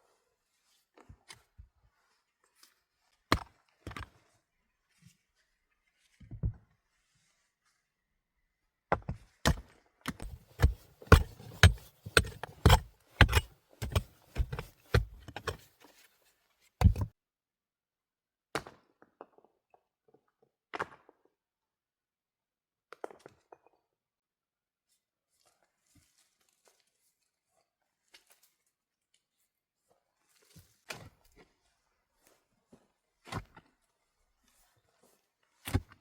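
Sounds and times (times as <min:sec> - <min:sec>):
heavy chopping blows on wood: 0:10.2 - 0:15.6.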